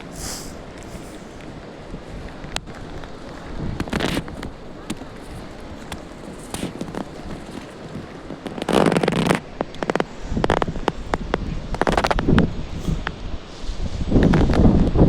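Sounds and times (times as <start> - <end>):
microphone handling rustle: 0.0 - 15.0.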